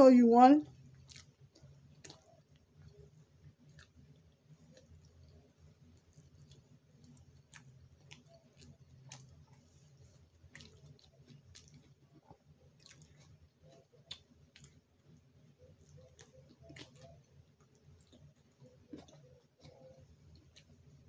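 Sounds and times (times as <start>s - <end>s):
chewing with wet mouth clicks: 0.6s - 21.0s.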